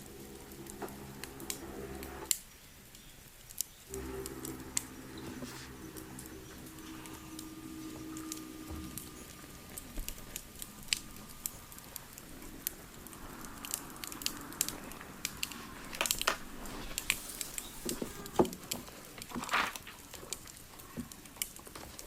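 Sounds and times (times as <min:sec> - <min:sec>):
wood fire crackling: 0:00.0 - 0:22.0
short rustling noise: 0:15.4 - 0:20.4.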